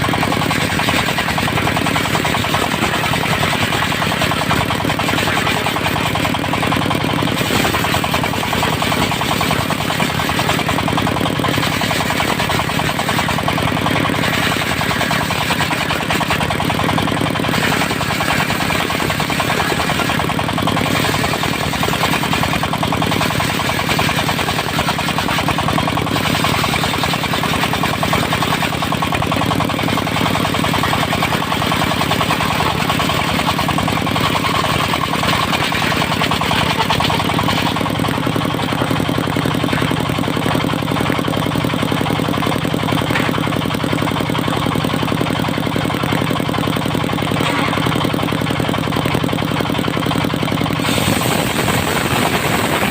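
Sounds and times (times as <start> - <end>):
diesel engine knocking chug: 0.0 - 52.9.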